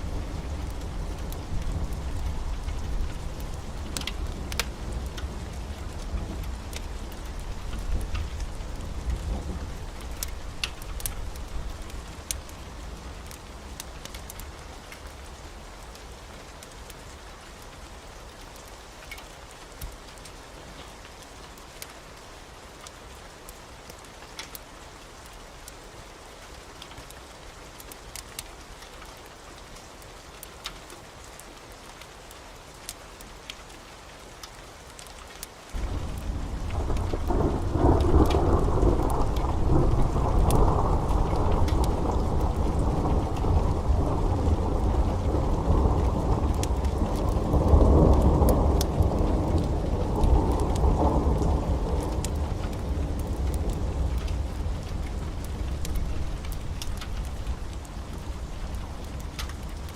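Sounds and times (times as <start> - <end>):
thunder rumbling: 0.0 - 12.6, 35.8 - 59.9
steady rain: 0.0 - 59.9.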